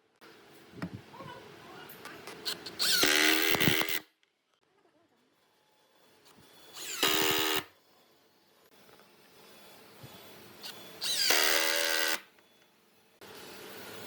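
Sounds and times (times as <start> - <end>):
power tool motor bursts: 2.4 - 4.1, 6.6 - 7.8, 10.6 - 12.3.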